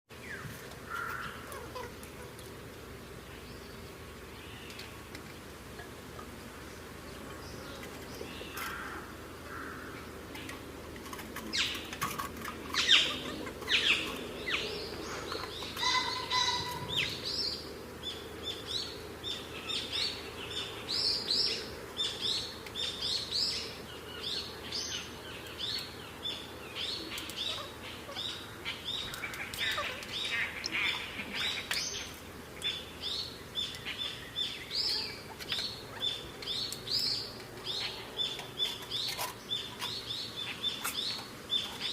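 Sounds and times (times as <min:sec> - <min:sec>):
birds chirping: 0:00.1 - 0:41.9.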